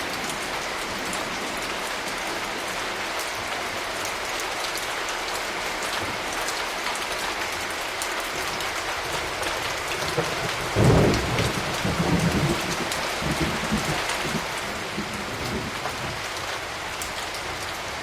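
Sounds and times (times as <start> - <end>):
steady rain: 0.0 - 18.0
thunder clap and rumble: 9.9 - 18.0.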